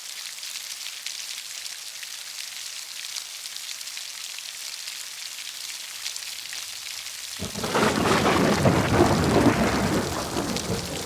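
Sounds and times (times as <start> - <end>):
heavy rain falling: 7.1 - 11.0.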